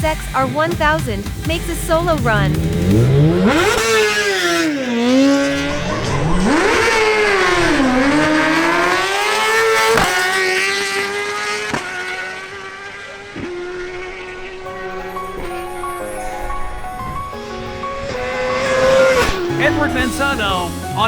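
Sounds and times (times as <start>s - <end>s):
motorcycle engine at full throttle: 0.0s - 14.9s.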